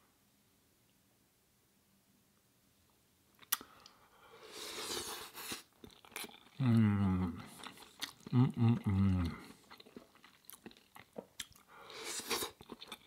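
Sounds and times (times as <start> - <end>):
wet chewing and smacking: 5.4 - 6.6, 7.4 - 13.0
man humming mm: 6.6 - 9.6.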